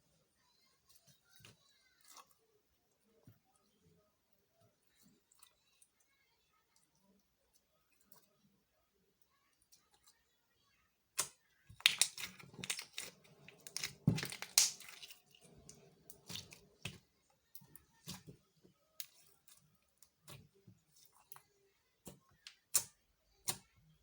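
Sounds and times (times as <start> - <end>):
slime crackling and popping: 11.2 - 15.3.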